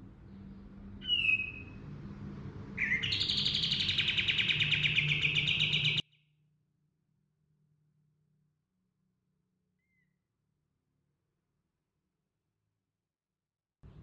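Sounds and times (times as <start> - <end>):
songbird whistle and trill: 1.0 - 2.0, 2.8 - 6.1.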